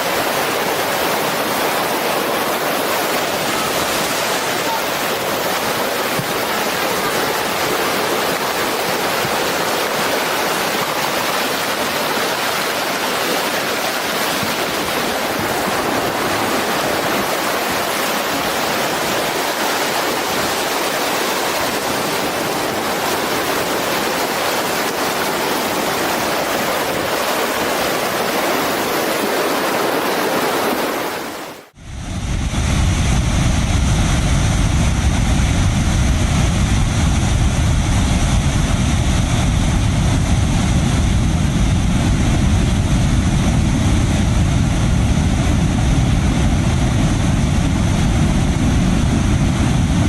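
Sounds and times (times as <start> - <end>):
rushing mud and floodwater: 0.0 - 31.8.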